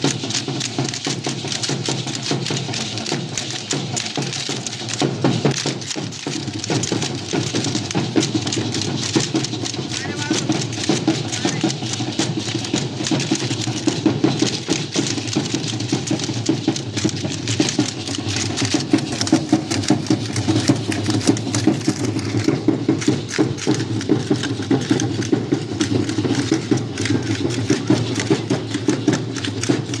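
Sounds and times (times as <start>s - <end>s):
clattering percussion: 0.0s - 30.0s
voices: 5.7s - 23.2s, 23.9s - 30.0s.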